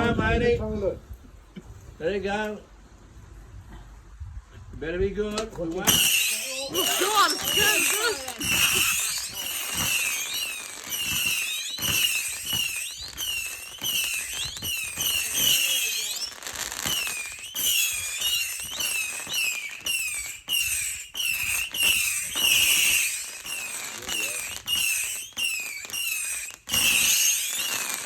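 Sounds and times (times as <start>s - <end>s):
fireworks popping: 5.3s - 28.0s
whistling fireworks: 5.8s - 28.0s.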